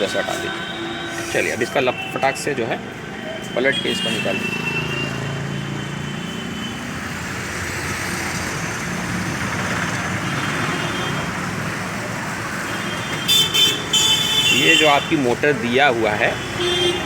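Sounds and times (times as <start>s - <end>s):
car horn: 0.0s - 5.5s, 10.2s - 11.4s, 12.6s - 15.2s, 16.3s - 17.0s
road traffic noise: 0.0s - 17.0s.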